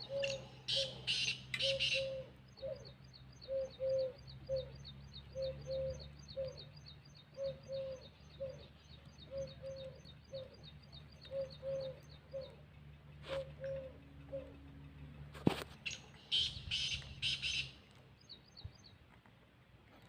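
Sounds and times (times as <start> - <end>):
dove cooing: 0.0 - 12.6, 13.2 - 14.6.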